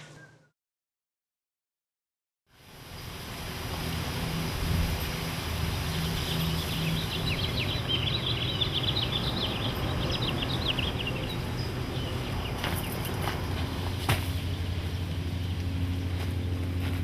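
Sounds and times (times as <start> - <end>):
low outdoor rumble: 2.6 - 17.0
small birds twittering: 5.0 - 13.7.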